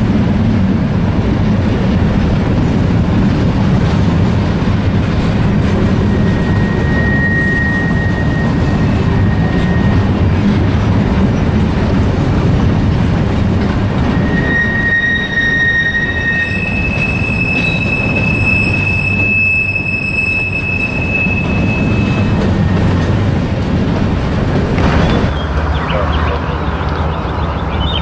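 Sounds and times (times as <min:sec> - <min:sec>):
freight train rumbling: 0:00.0 - 0:28.0
steel wheel squeals: 0:05.0 - 0:11.6, 0:13.8 - 0:23.9.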